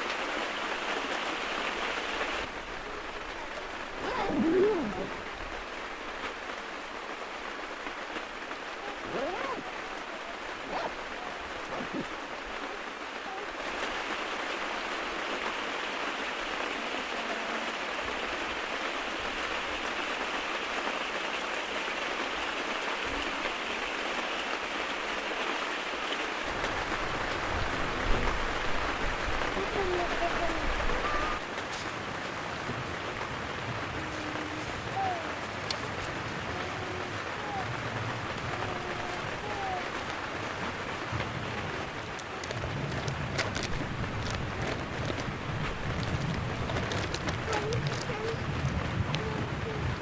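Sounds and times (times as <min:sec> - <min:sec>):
steady rain hiss: 0:00.0 - 0:50.0
faint calls or yelps: 0:04.0 - 0:05.2, 0:08.7 - 0:13.7, 0:29.5 - 0:31.5, 0:33.8 - 0:40.3.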